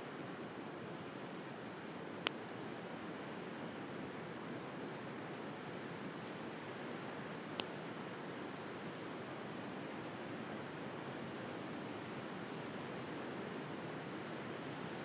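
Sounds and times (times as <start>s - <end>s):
bonfire crackling and popping: 0.2s - 3.9s, 7.4s - 14.6s.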